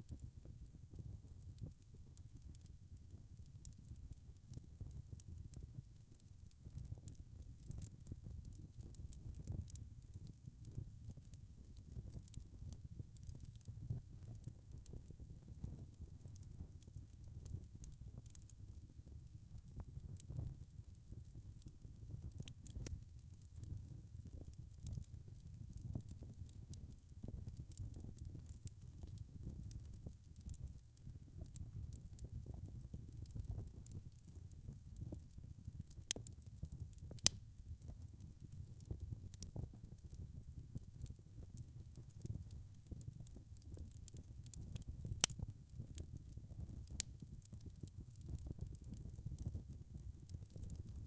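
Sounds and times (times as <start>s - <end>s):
wood fire crackling: 0.1s - 51.0s.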